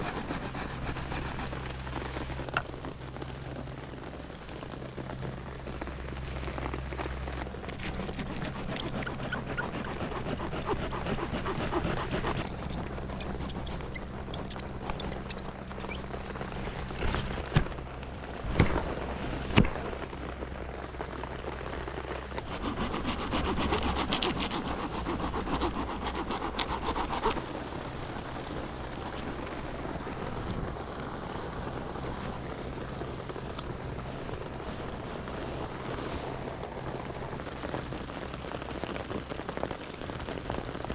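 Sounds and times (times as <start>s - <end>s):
wood rubbing rasp: 0.0s - 1.7s, 7.8s - 16.2s, 22.4s - 27.4s
firewood cracking: 0.0s - 18.9s.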